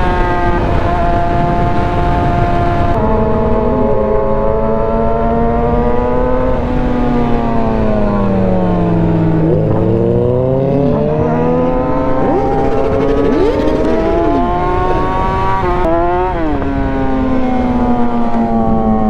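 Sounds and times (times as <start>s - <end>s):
motorcycle engine running: 8.0s - 19.0s.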